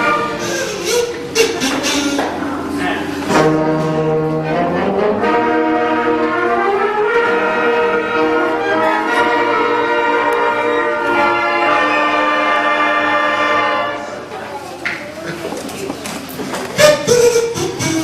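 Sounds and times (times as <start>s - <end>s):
concert band playing chords: 0.0s - 13.4s.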